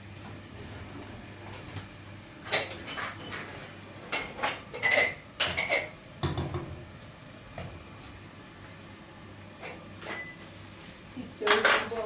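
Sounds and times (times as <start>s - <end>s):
dishes clinking: 2.4s - 6.8s, 9.6s - 10.4s, 11.4s - 12.0s.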